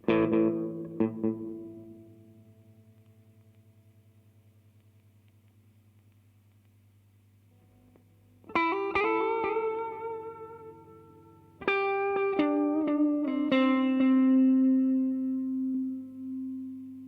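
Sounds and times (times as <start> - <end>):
electric guitar with reverb: 0.0 - 5.0, 7.5 - 17.0
faint amp hum: 0.0 - 17.0.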